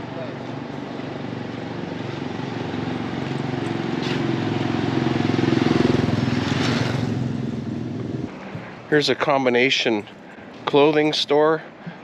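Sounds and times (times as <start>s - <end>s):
motorbike engine approaching: 0.0s - 9.1s.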